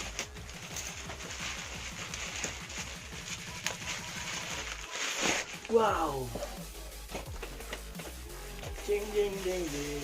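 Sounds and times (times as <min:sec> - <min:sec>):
packaging rustling and knocking: 0:00.0 - 0:08.9.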